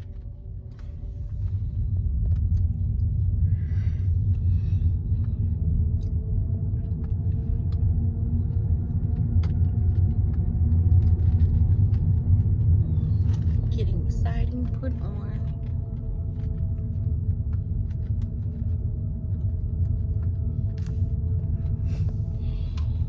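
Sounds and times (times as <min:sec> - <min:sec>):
car interior rumble: 0:00.0 - 0:23.0.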